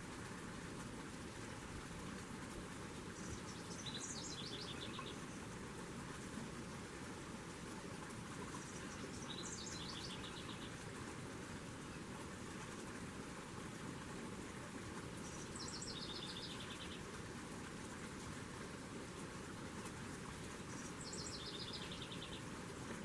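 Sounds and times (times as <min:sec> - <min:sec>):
songbird singing trill: 0:03.2 - 0:05.2, 0:08.6 - 0:10.8, 0:15.3 - 0:17.0, 0:20.7 - 0:22.5.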